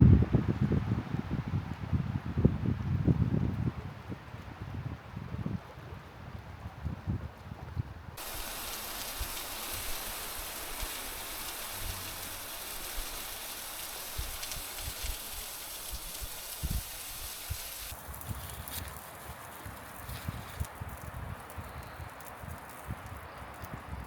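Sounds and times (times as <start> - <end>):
steady hiss: 8.2 - 19.1.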